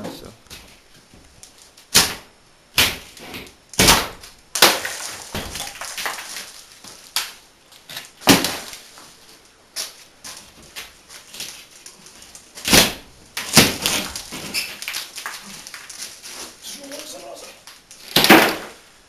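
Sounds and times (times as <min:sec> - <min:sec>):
knocks and crashes of demolition: 0:01.9 - 0:07.3, 0:07.9 - 0:09.0, 0:10.3 - 0:17.2, 0:18.0 - 0:18.8
broken material scraping and rattling: 0:04.7 - 0:18.8.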